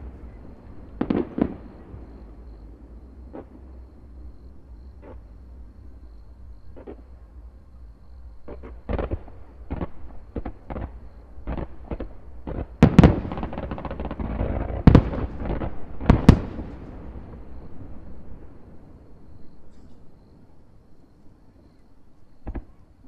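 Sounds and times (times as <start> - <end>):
fireworks bangs: 0.0 - 4.3, 8.4 - 18.7
fireworks crackling: 0.0 - 4.3, 8.4 - 18.6.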